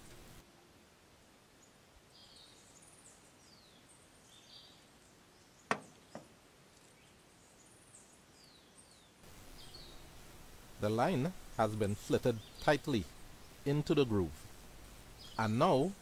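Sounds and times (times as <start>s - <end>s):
birds chirping and whistling: 8.4s - 10.1s, 12.3s - 13.7s, 15.1s - 16.0s.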